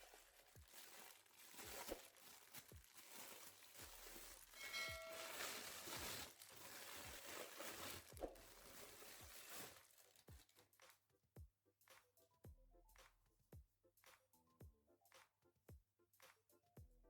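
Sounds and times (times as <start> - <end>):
packaging crinkling: 0.0 - 10.6.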